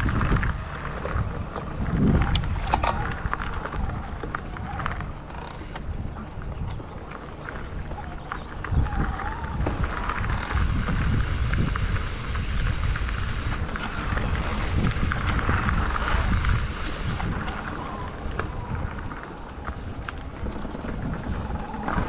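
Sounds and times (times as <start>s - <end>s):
wind buffeting microphone: 0.0s - 22.0s
tyre and road hiss: 10.4s - 21.5s.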